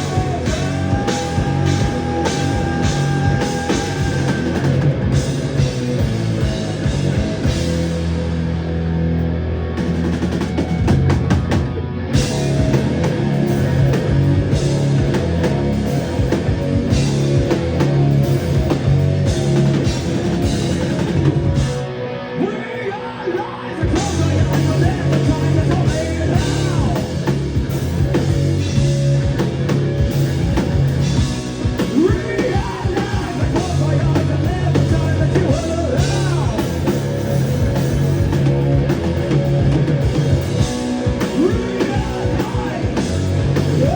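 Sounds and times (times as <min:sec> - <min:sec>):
person singing: 0:00.0 - 0:04.8, 0:22.3 - 0:27.2, 0:31.8 - 0:37.0, 0:41.2 - 0:43.9
drum kit: 0:00.0 - 0:22.0, 0:23.8 - 0:43.9
live rock band: 0:00.0 - 0:43.9.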